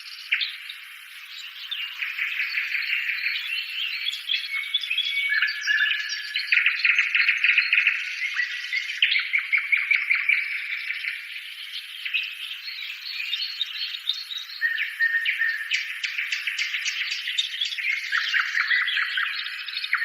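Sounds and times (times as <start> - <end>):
birds chirping and trilling: 0.0 - 20.0.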